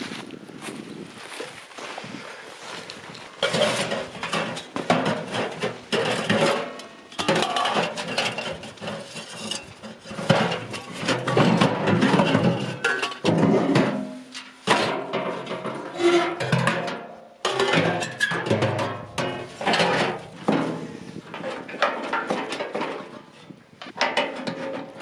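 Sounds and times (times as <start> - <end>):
clattering clinks and knocks: 3.4 - 23.3.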